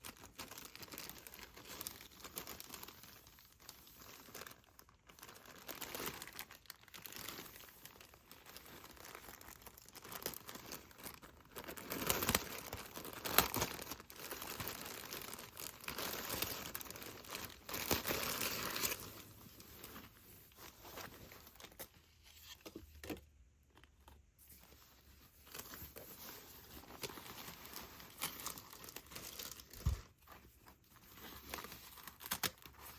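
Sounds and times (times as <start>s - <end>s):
packaging being torn and crinkled: 0.0s - 19.2s, 31.2s - 32.9s.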